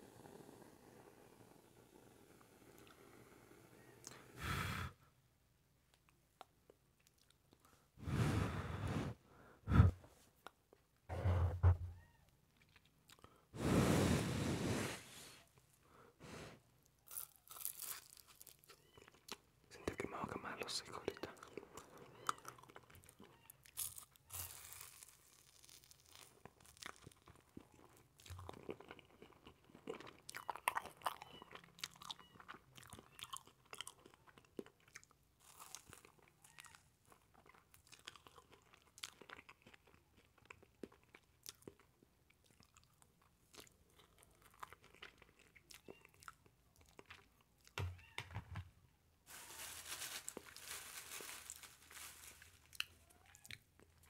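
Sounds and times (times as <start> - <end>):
chewing marshmallow: 16.8 - 19.5, 20.9 - 47.8, 52.6 - 54.0.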